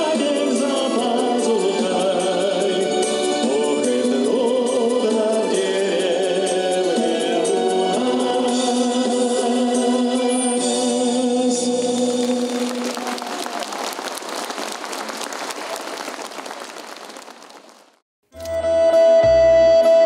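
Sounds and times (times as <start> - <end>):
applause: 11.8 - 18.0.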